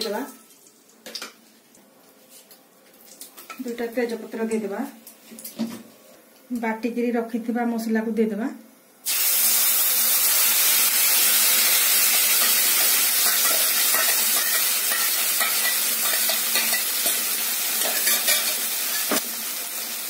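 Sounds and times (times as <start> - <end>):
masala paste sizzling in hot oil: 9.0 - 20.0.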